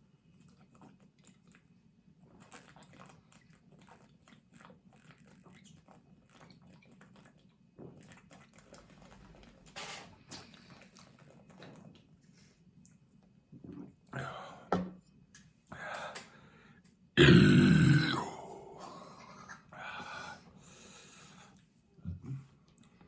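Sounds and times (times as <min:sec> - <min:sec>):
faint chewing: 0:00.3 - 0:13.4.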